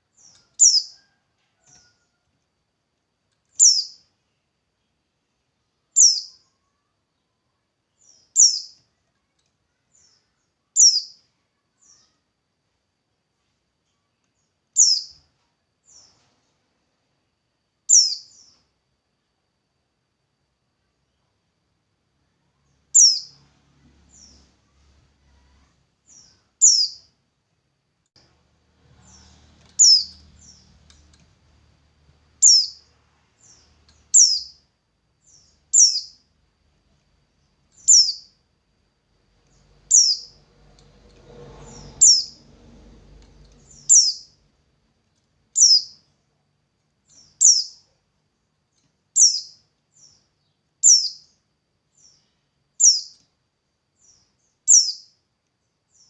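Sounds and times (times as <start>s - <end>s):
songbird high chirp: 0.0s - 2.2s, 3.5s - 5.0s, 5.6s - 12.3s, 13.8s - 16.3s, 17.9s - 18.7s, 22.3s - 27.2s, 28.2s - 31.2s, 32.3s - 36.3s, 37.4s - 38.4s, 39.4s - 40.5s, 41.3s - 42.6s, 43.2s - 44.5s, 45.5s - 46.2s, 47.0s - 48.0s, 48.7s - 53.4s, 54.0s - 55.2s.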